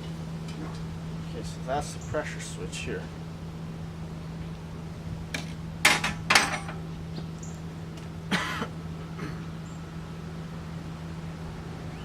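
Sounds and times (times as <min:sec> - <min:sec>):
steady low hum: 0:00.0 - 0:12.0
hard parts knocking and clattering: 0:05.4 - 0:06.8.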